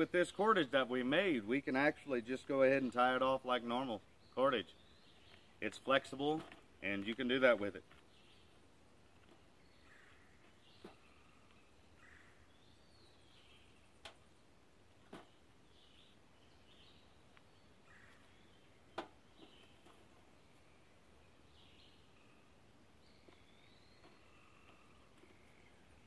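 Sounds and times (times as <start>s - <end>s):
faint bird calls: 7.8s - 14.2s, 15.0s - 26.0s.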